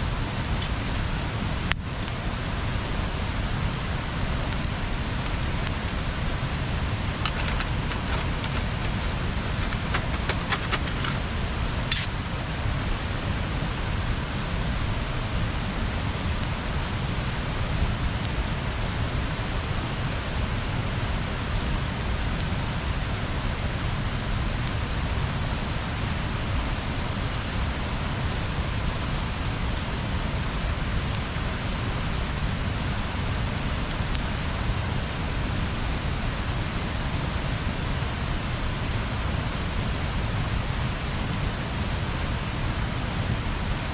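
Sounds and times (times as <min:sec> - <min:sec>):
burning wood crackling and popping: 0:04.4 - 0:12.1.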